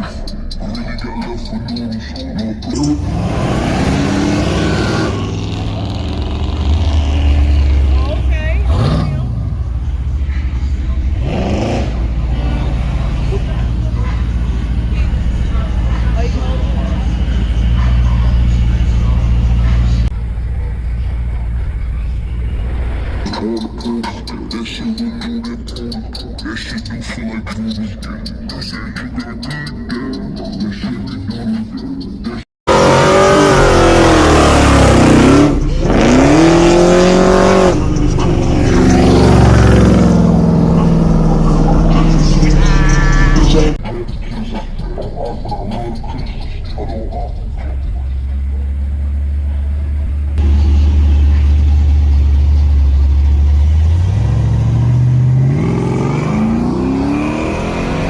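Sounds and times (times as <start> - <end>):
music: 0.0 - 3.3, 41.6 - 49.3
car engine revving: 0.0 - 29.1, 32.6 - 58.0.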